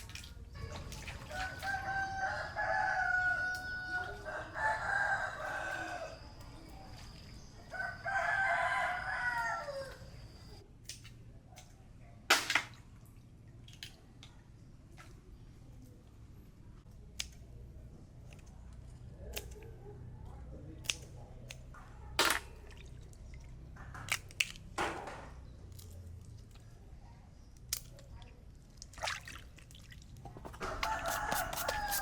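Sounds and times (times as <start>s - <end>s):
rooster crowing: 1.4s - 6.3s, 7.7s - 10.6s, 30.6s - 32.0s.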